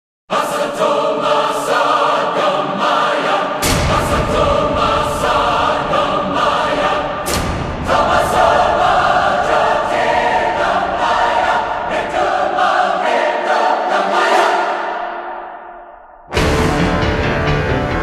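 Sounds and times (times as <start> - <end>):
choir singing with music: 0.3 - 18.0
sharp musical hit: 16.3 - 18.0.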